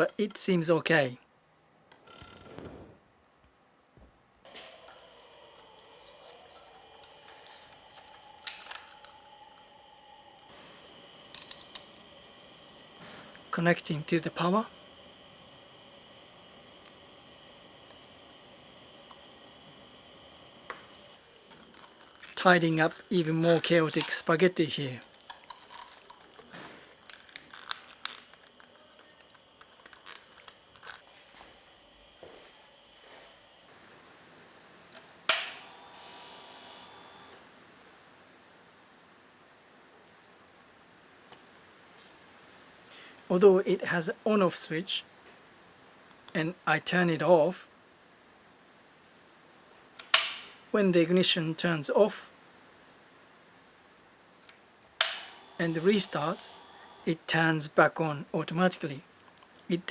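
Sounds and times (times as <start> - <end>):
faint hum: 4.0 - 41.8
tools clicking and snipping wiring: 6.9 - 9.2, 20.7 - 31.1, 35.0 - 35.6, 50.0 - 50.6, 55.0 - 56.4.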